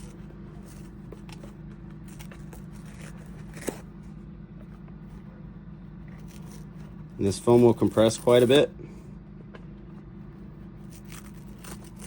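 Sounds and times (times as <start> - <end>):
steady low hum: 0.0 - 12.0
foam tearing by hand: 10.8 - 12.0.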